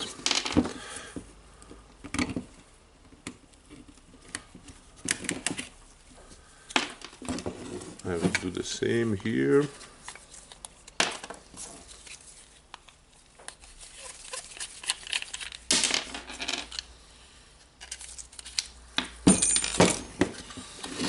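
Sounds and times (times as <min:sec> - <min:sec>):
small metal parts clicking and scraping: 0:17.8 - 0:18.7.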